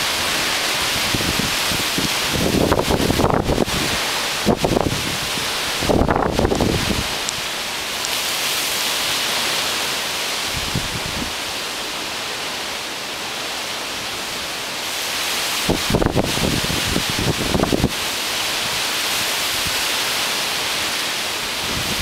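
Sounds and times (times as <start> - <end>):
wind gusts buffeting microphone: 0.0 - 7.6, 10.4 - 11.5, 15.5 - 20.2, 21.3 - 22.0
strong wind hissing: 0.0 - 7.9, 8.5 - 12.6, 14.7 - 22.0.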